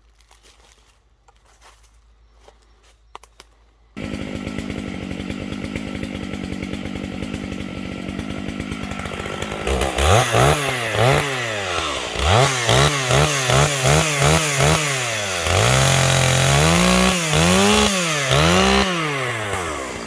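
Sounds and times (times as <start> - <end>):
chainsaw running steadily: 4.0 - 20.0.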